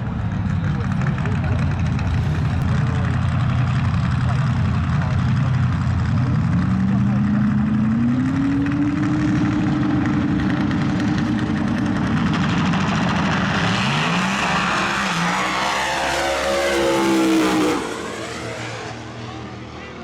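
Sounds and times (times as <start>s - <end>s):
race car engine high revs: 12.7s - 19.7s.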